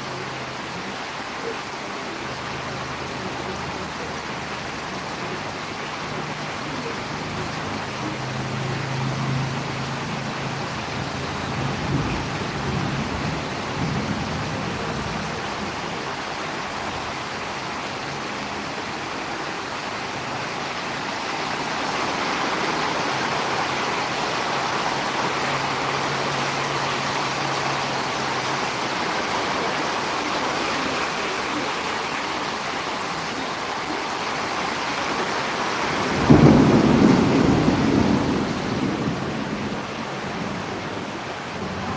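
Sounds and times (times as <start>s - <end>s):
rain falling: 0.0s - 41.9s
low rumble of thunder: 8.9s - 16.2s, 35.9s - 41.9s.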